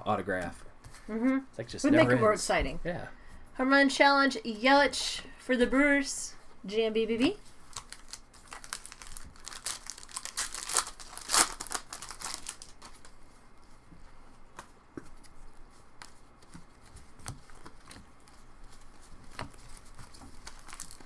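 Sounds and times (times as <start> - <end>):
foil wrapper tearing and crinkling: 7.6 - 13.2, 17.2 - 21.0.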